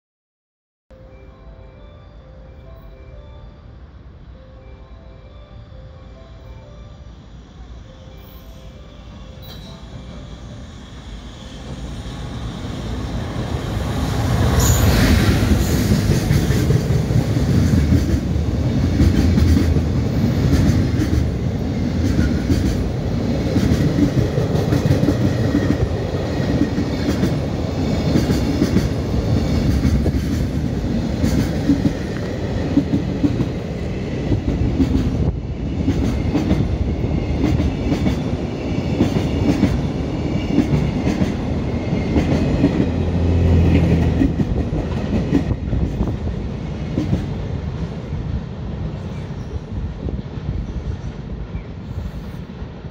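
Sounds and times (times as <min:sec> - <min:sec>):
train wheels clattering on rails: 0:14.0 - 0:48.0.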